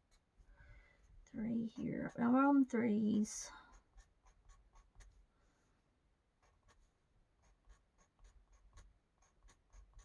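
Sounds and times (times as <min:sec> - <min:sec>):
marker rubbing across paper: 0:03.7 - 0:05.3, 0:06.4 - 0:10.0.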